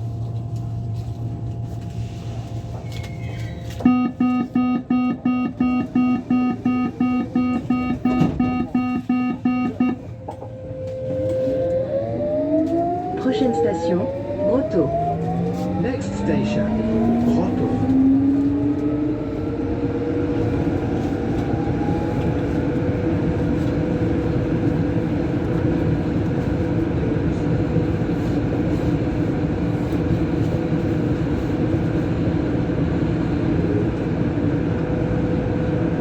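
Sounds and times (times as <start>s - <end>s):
train rumbling: 0.0s - 36.0s
train motor hum: 3.7s - 23.8s.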